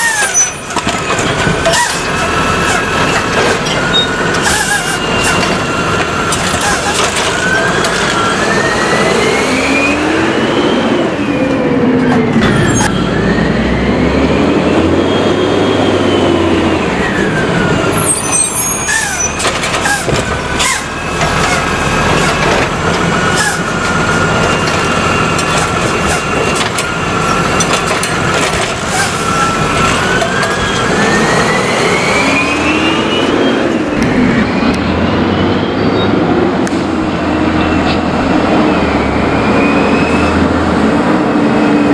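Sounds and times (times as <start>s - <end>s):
metallic clanks and rattles: 0.0s - 8.2s, 19.0s - 30.9s
truck engine revving: 0.0s - 41.9s.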